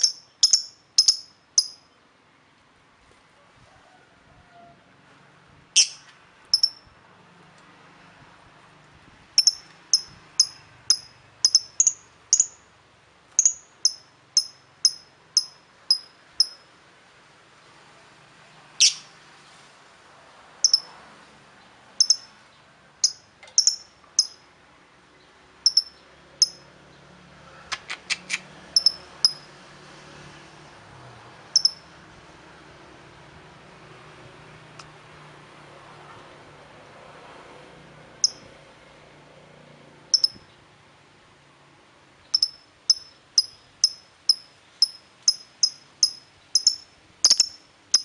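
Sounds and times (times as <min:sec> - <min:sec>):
small bird chirping: 0:00.0 - 0:02.0, 0:05.8 - 0:06.9, 0:09.4 - 0:12.7, 0:13.4 - 0:16.7, 0:18.8 - 0:19.2, 0:20.6 - 0:20.9, 0:22.0 - 0:22.4, 0:23.0 - 0:24.5, 0:25.6 - 0:26.7, 0:27.8 - 0:29.5, 0:31.6 - 0:31.9, 0:38.2 - 0:38.5, 0:40.1 - 0:40.6, 0:42.2 - 0:48.0.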